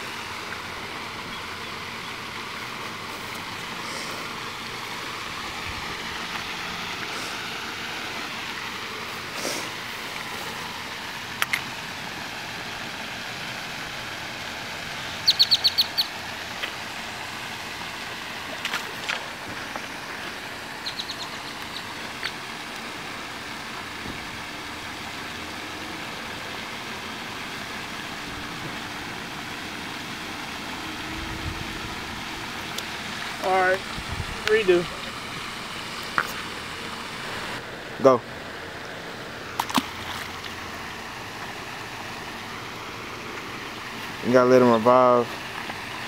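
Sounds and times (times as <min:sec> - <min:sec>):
steady background noise: 0:00.0 - 0:46.0
birds chirping: 0:01.2 - 0:02.2, 0:14.9 - 0:16.2, 0:20.7 - 0:22.4.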